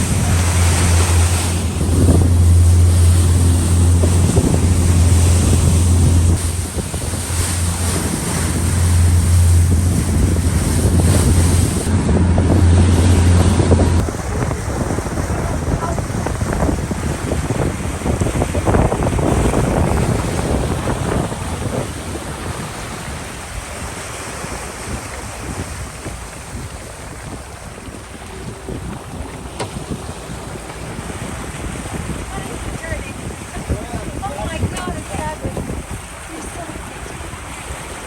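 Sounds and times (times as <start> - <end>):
low engine drone: 0.0 - 24.2
sea rushing past boat: 0.0 - 38.0
wind buffeting microphone: 0.0 - 38.0.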